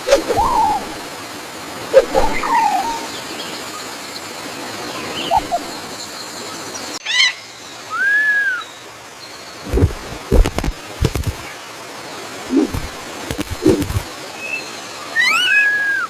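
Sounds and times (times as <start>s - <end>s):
steady background hiss: 0.0s - 16.0s
bird whistled calls: 0.1s - 1.0s, 2.0s - 3.2s, 5.2s - 5.8s, 7.9s - 8.8s, 15.2s - 16.0s
bird chirps: 5.1s - 5.9s.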